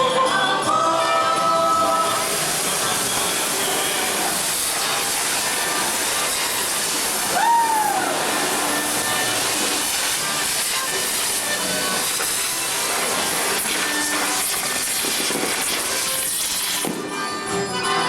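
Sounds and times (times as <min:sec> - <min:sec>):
crowd hubbub: 0:00.0 - 0:18.0
rising and falling whistle: 0:07.3 - 0:08.8.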